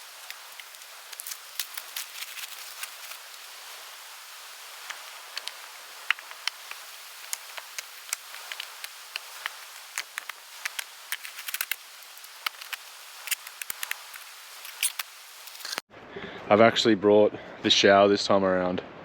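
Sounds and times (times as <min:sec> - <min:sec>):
sharp clicks and crackles: 0:00.0 - 0:03.4, 0:04.8 - 0:15.8
steady outdoor hiss: 0:00.0 - 0:19.0.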